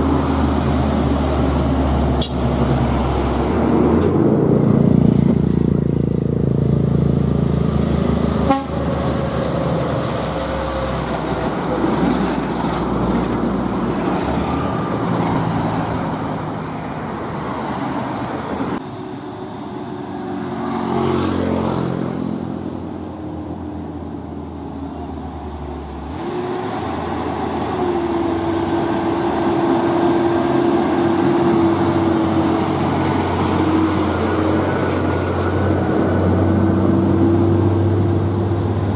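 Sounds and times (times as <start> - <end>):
vehicle passing: 0.0 - 18.8, 20.0 - 23.0
diesel trucks on road: 0.0 - 38.9.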